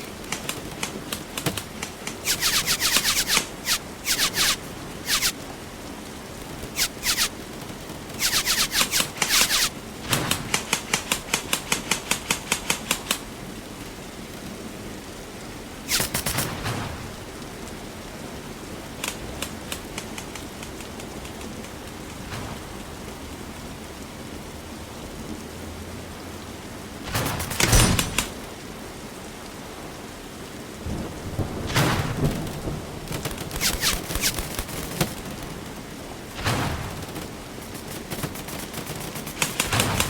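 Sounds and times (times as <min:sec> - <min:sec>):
airsoft guns firing bursts: 0:00.0 - 0:05.4, 0:06.8 - 0:07.3, 0:08.2 - 0:13.1, 0:15.9 - 0:16.6, 0:27.1 - 0:28.4, 0:33.1 - 0:35.4, 0:36.4 - 0:40.0.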